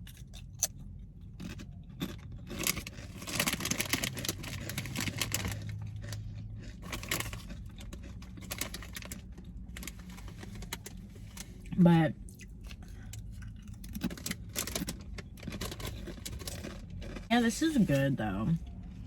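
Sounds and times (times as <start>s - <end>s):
low steady hum: 0.0s - 19.0s
paper wrapper rustling and crinkling: 2.6s - 5.8s.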